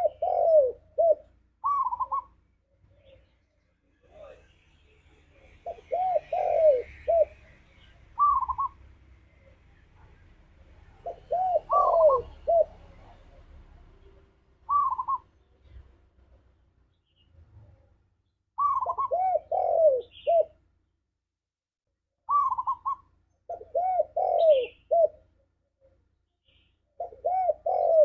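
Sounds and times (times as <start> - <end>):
dove cooing: 0.0 - 3.3, 5.4 - 15.8, 18.6 - 20.6, 22.3 - 25.3, 27.0 - 28.0.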